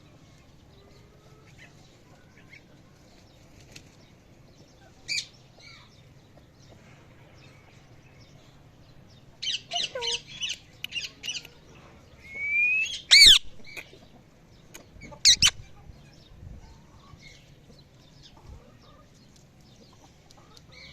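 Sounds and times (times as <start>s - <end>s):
parrot squawking: 9.4s - 10.5s, 12.8s - 13.5s, 15.2s - 15.6s
parrot chirping and whistling: 12.3s - 13.4s.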